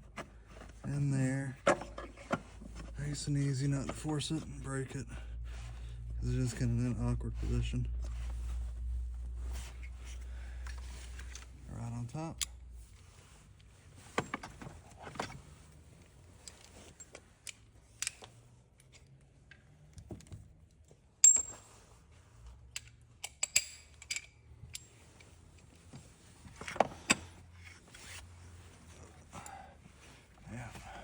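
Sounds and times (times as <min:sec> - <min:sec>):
metal tools clicking and clinking: 0:21.2 - 0:21.6, 0:22.7 - 0:25.3
sharp ringing clink: 0:21.2 - 0:21.7.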